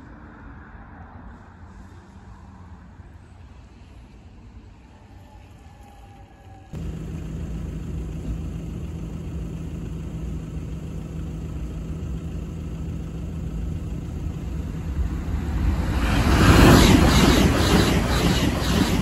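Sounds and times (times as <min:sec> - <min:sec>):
train rumbling and humming: 0:06.0 - 0:19.0.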